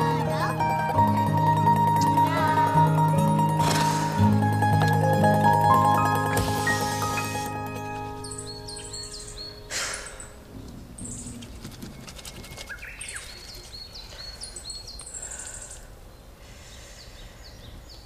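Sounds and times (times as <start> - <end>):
steady outdoor hiss: 0.0 - 18.0
small birds chirping: 6.3 - 18.0.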